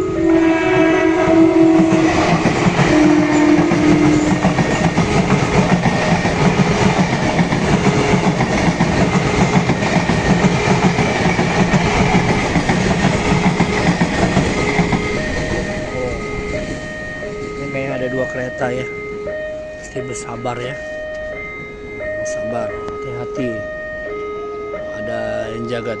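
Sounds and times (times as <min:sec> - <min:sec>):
train horn blasts: 0:00.0 - 0:07.0
wheels clattering over rails: 0:00.0 - 0:17.9
train rumbling past: 0:00.0 - 0:26.0.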